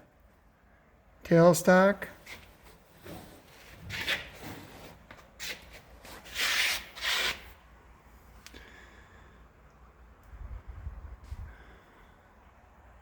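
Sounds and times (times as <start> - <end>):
rubbing and scraping: 2.2 - 7.6.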